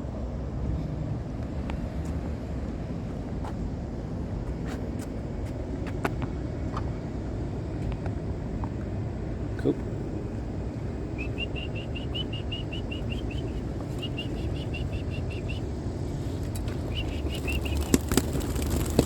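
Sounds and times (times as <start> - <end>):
high bird chirps: 11.1 - 15.8, 16.8 - 18.2
pigeon wings flapping: 16.3 - 19.0.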